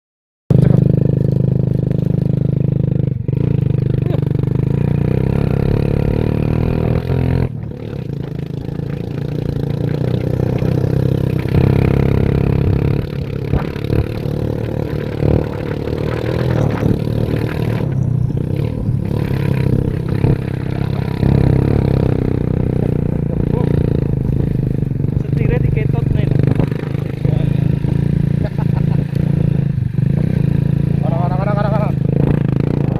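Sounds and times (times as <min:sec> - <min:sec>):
excavator diesel engine running: 0:03.6 - 0:32.0.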